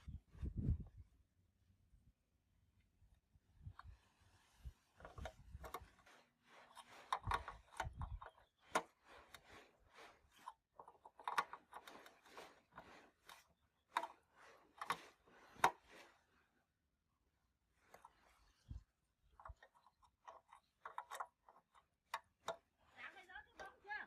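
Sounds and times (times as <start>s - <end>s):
scraping and rubbing: 3.8s - 16.6s, 17.7s - 24.0s.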